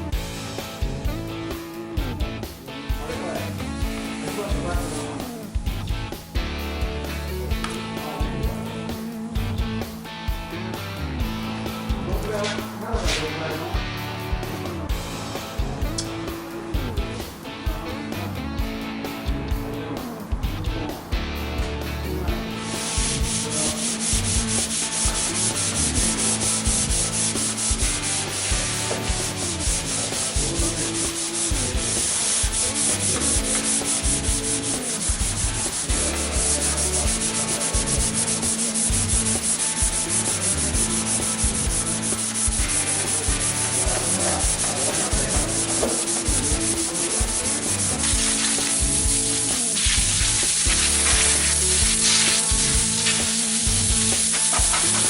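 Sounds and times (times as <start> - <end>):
sanding car bodywork: 22.7 - 55.0.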